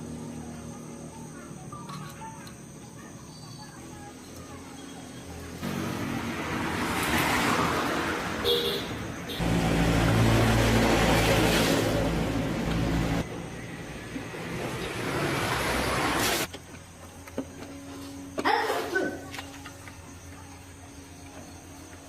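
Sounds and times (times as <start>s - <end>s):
motor vehicles passing: 5.2s - 16.5s
loud engine running: 5.6s - 7.2s, 9.3s - 16.5s.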